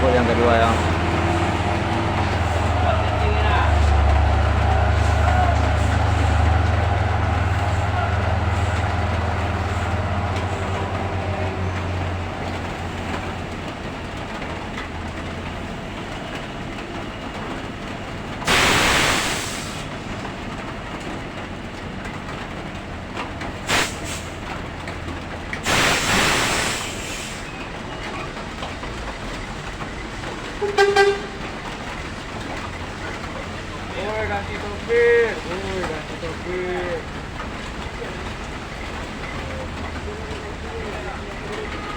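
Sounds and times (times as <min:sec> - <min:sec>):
truck engine running low: 0:00.0 - 0:41.9
air-brake hiss: 0:18.5 - 0:19.9, 0:23.7 - 0:24.5, 0:25.6 - 0:27.6
vehicle horn short toots: 0:30.6 - 0:31.4.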